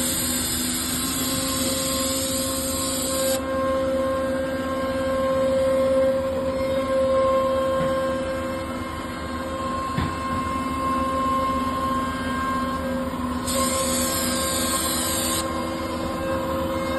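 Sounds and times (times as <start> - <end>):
router spindle whining: 13.4 - 16.2.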